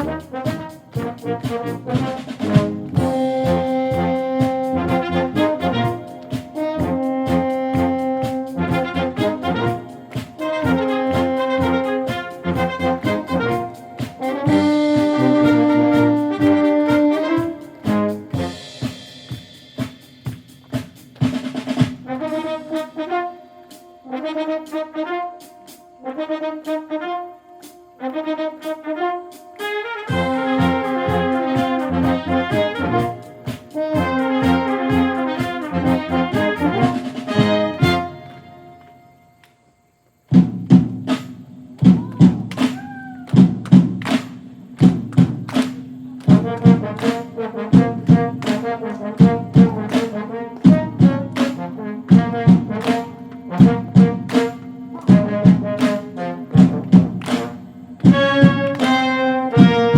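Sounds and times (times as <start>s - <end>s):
held brass notes: 0.0s - 20.8s, 21.4s - 39.8s, 41.8s - 59.9s
sharp drum strokes: 0.0s - 24.0s, 40.3s - 59.9s
brass chords: 0.0s - 39.5s, 43.6s - 59.9s.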